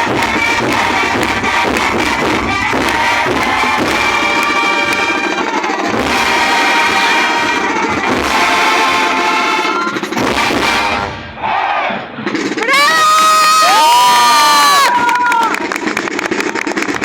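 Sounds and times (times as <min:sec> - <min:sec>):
brass chords: 0:00.0 - 0:12.2
drums and cymbals: 0:00.0 - 0:15.4.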